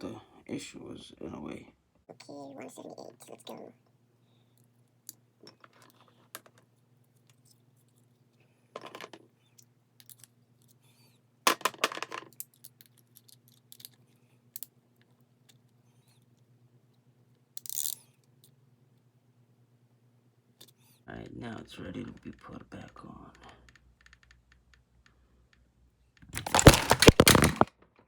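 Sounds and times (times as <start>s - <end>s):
metal tools clicking and clinking: 26.4s - 27.6s
metal parts clattering: 26.4s - 27.7s.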